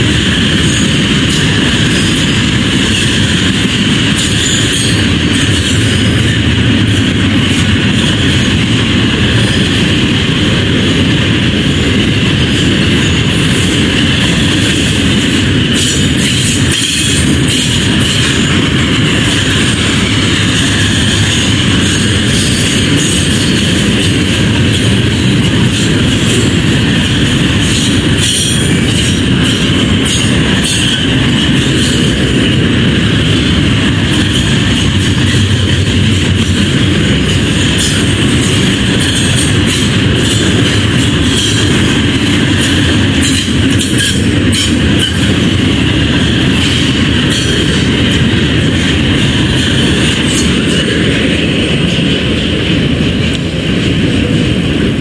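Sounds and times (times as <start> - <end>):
freight train wheels rumbling: 0.0 - 55.0
rail joint clicks: 0.0 - 55.0
high wheel squeal: 0.4 - 6.4.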